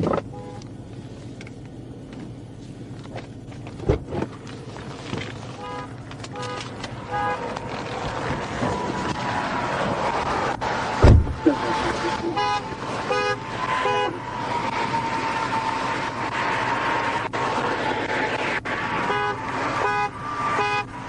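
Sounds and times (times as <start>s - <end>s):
vehicle running: 0.0s - 21.0s
steady tone: 11.0s - 14.4s.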